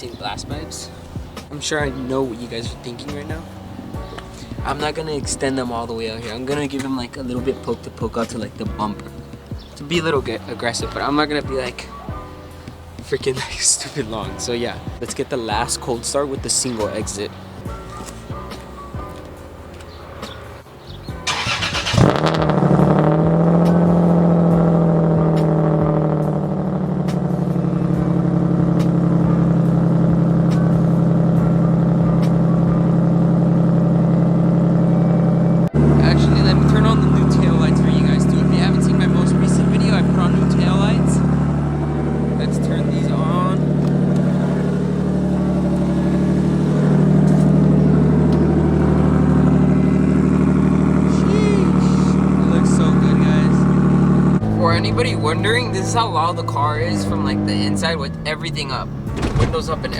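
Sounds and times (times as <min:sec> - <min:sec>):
car engine idling: 0:00.0 - 0:59.9
starter cranking: 0:21.2 - 0:23.5.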